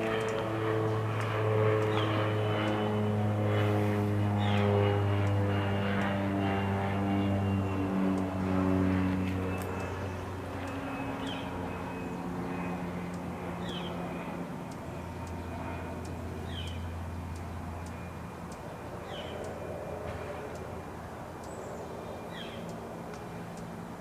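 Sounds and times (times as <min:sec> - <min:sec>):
propeller airplane engine drone: 0:00.0 - 0:24.0
bird chirping: 0:09.5 - 0:12.7, 0:13.6 - 0:14.0, 0:14.8 - 0:19.6, 0:21.3 - 0:22.9.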